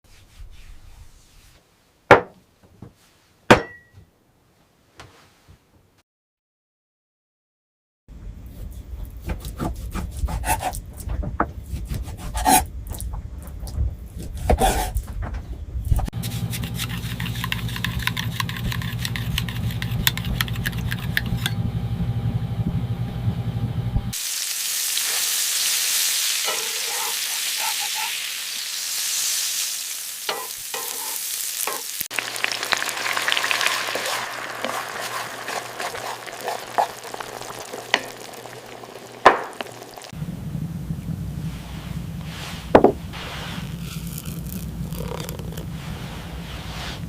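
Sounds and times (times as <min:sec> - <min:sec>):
low hum: 0:15.6 - 0:24.2, 0:35.2 - 0:47.0
stirring and scraping in a pan: 0:16.2 - 0:21.6, 0:26.3 - 0:28.3, 0:30.3 - 0:40.1
meat sizzling in a pan: 0:24.2 - 0:40.1.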